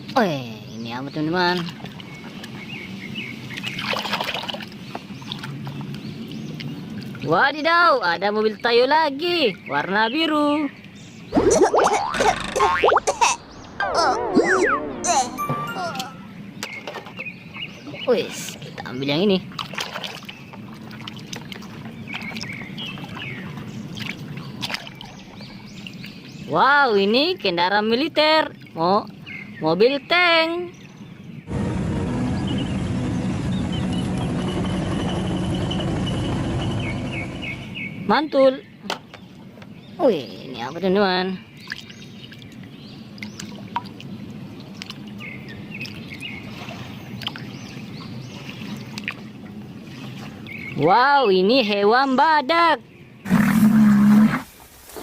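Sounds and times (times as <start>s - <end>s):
water sloshing and trickling: 1.0s - 8.6s, 16.0s - 27.3s, 28.2s - 29.5s, 40.9s - 51.4s
birds chirping: 4.7s - 19.4s, 28.6s - 49.4s.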